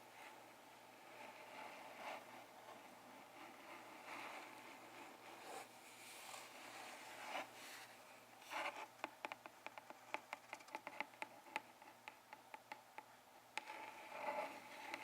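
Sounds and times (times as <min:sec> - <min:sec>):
small sharp clicks and taps: 0:09.0 - 0:13.8.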